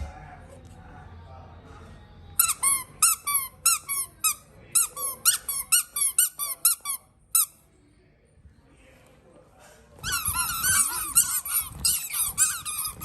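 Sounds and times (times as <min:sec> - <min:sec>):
squeaky baby toy: 0:02.4 - 0:07.6, 0:10.0 - 0:13.0.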